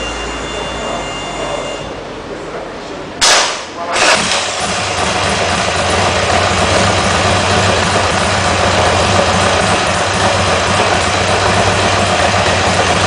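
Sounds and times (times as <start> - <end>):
motorcycle engine starting and idling: 3.3 - 13.0.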